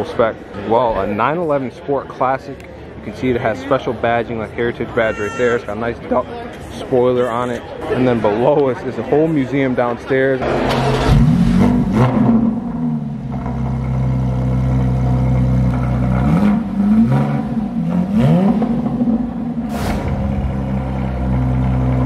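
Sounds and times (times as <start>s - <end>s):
car engine idling and revving: 10.4s - 19.7s, 20.4s - 22.0s
sharp crack: 19.7s - 22.0s.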